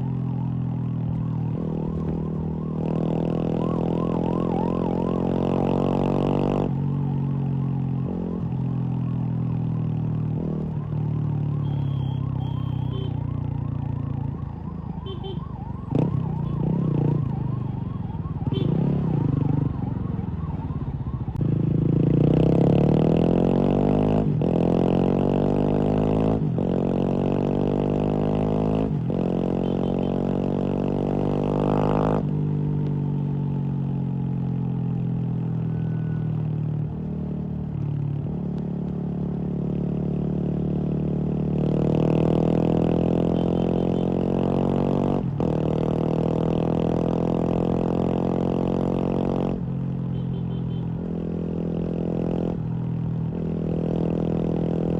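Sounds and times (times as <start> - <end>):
motorcycle engine revving: 1.1 - 6.9, 18.2 - 32.6, 36.9 - 54.9.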